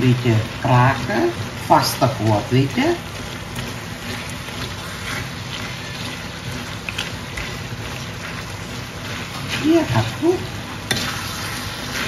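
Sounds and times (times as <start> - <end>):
food sizzling in a wok: 0.0 - 12.0
metal spoon scraping pan: 10.9 - 12.0.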